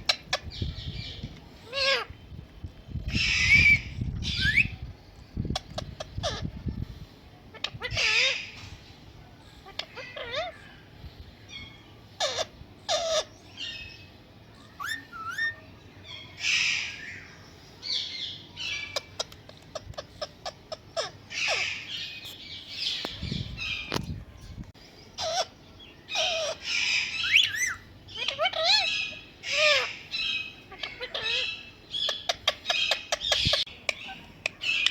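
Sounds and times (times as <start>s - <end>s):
parrot whistles and squawks: 3.1s - 4.8s, 14.7s - 15.6s, 18.6s - 22.2s, 26.1s - 34.9s.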